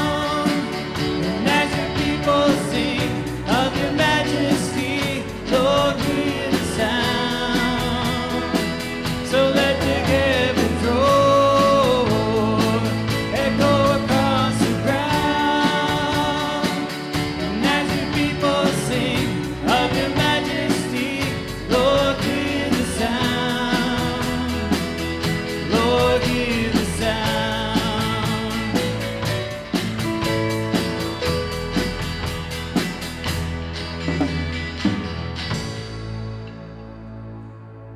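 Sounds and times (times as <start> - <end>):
people singing: 0.0 - 29.3
guitar and band chords: 0.0 - 37.8.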